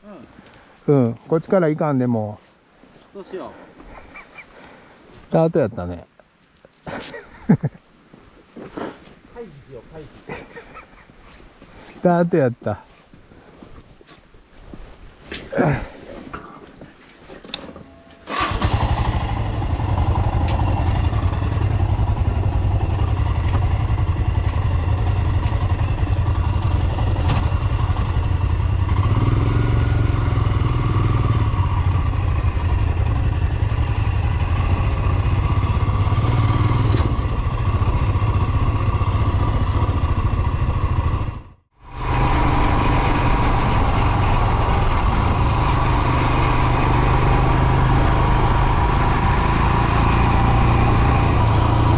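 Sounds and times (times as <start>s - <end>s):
single-cylinder engine running: 18.3s - 51.9s.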